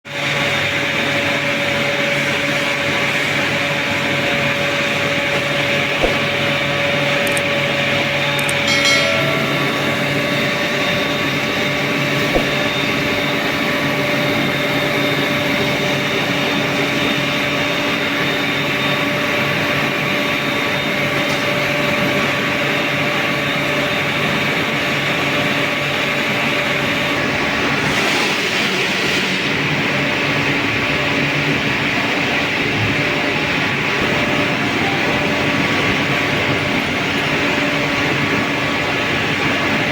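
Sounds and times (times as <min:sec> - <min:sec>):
industrial machinery roar: 0:00.1 - 0:39.9
sharp metal knocks: 0:08.4 - 0:10.6
brief ringing tone: 0:08.4 - 0:12.8.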